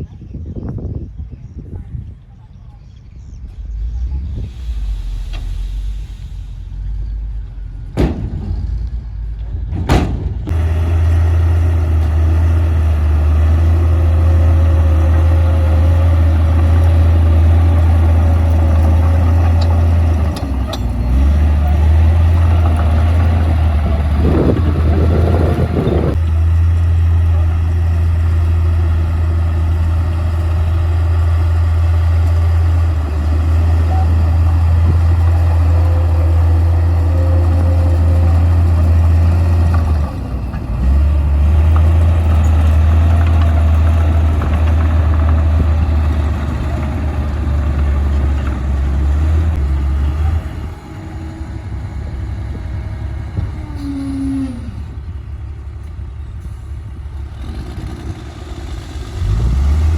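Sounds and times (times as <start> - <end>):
bulldozer diesel engine droning: 0.0 - 59.9.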